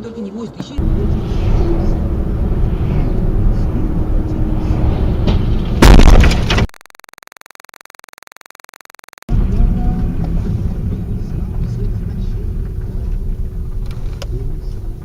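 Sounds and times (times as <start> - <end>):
road and engine rumble: 0.0 - 6.7, 9.3 - 15.0
loud crash impact with cracking: 5.0 - 6.7.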